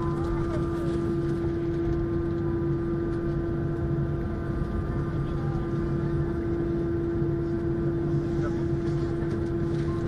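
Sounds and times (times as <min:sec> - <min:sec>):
jet cabin engine drone: 0:00.0 - 0:10.0.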